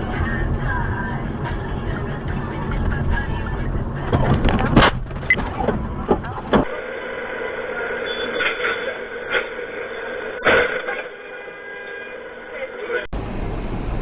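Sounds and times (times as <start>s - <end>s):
vehicle rumble: 0.0s - 11.4s, 12.1s - 14.0s
steady vehicle hum: 0.0s - 14.0s.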